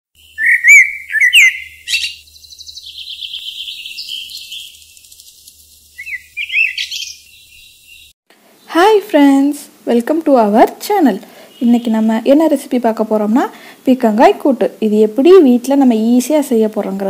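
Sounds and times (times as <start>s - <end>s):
songbirds chirping and trilling: 0.2s - 9.2s, 11.0s - 14.0s.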